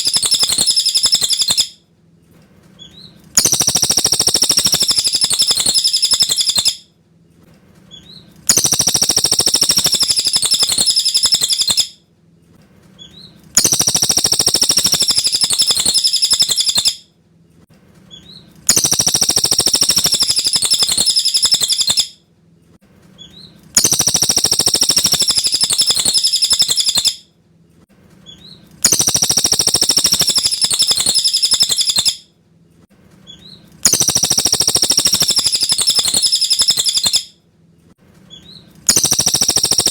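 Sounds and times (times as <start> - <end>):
bird chirping: 0.0 - 1.8, 2.8 - 6.9, 7.9 - 12.0, 13.0 - 17.0, 18.1 - 22.2, 23.2 - 27.3, 28.2 - 32.3, 33.2 - 37.4, 38.3 - 39.9.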